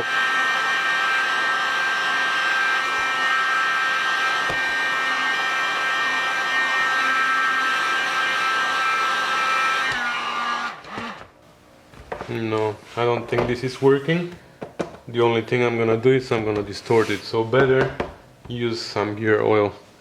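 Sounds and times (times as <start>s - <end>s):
heat gun fan whining: 0.0s - 11.4s.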